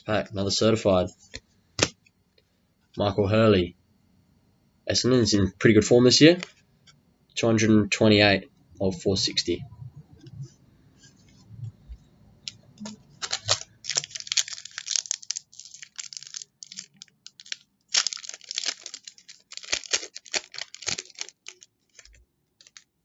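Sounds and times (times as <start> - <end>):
foil wrapper tearing and crinkling: 12.8 - 23.0.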